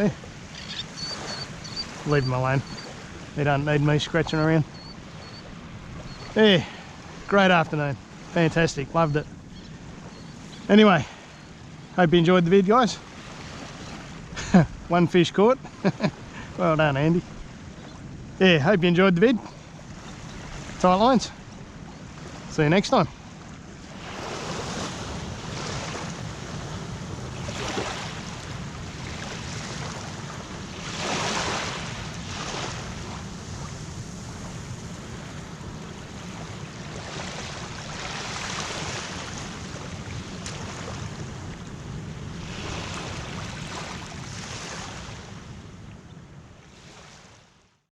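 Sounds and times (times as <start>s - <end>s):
surf breaking on beach: 23.9s - 45.4s.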